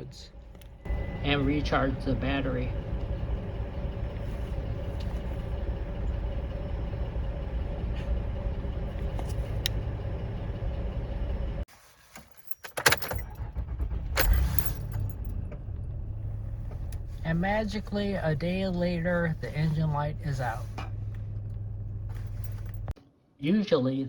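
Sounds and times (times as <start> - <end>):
car engine idling: 0.0 - 11.7, 12.9 - 23.0
keys clicking and rattling: 12.2 - 13.3, 22.1 - 22.9.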